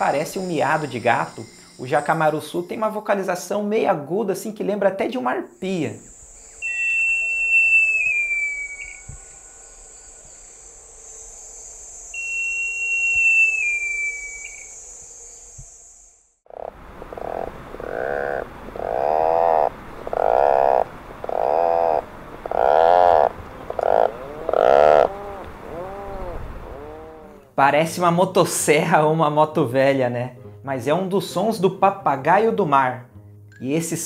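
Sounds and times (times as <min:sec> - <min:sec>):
bird whistles sliding down: 0:06.5 - 0:10.4, 0:11.2 - 0:15.6
puffins growling: 0:21.4 - 0:27.5.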